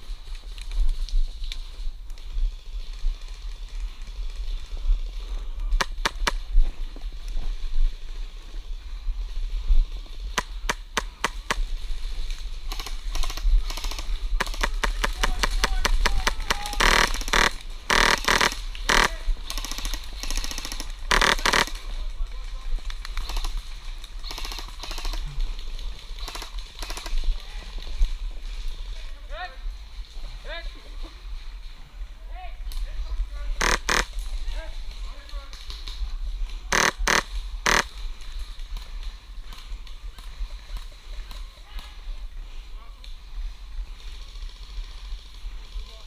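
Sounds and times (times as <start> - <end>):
airsoft guns firing: 12.8 - 21.8, 36.7 - 37.9.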